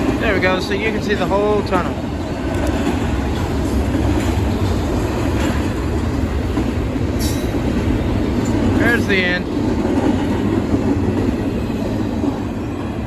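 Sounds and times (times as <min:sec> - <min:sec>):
freight train rolling past: 0:00.0 - 0:13.0.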